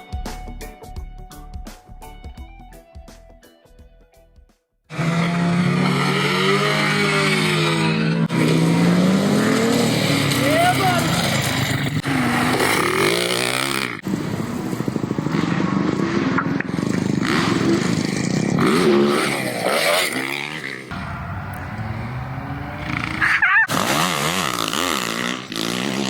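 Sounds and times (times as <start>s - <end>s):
motocross bike engine revving: 4.9s - 26.0s.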